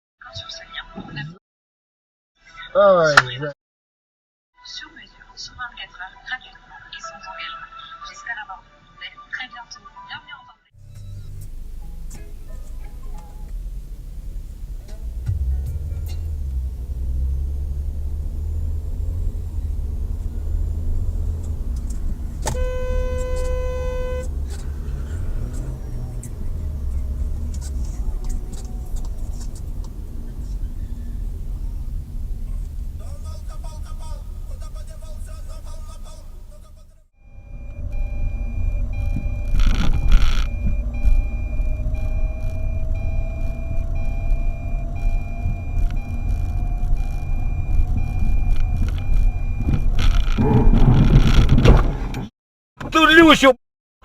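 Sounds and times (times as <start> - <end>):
faint rising whine: 10.8 - 49.7
car driving rumble: 10.8 - 52.3
car horn blast: 22.3 - 27.5.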